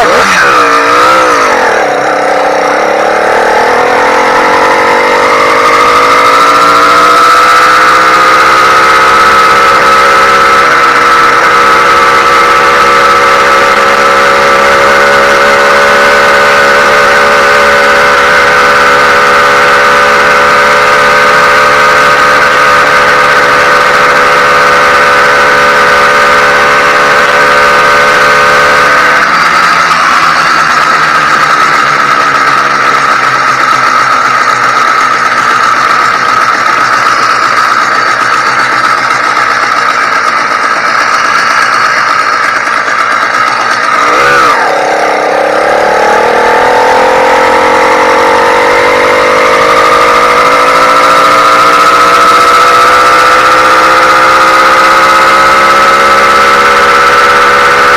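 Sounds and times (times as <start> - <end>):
two-stroke engine idling: 0.0 - 57.9.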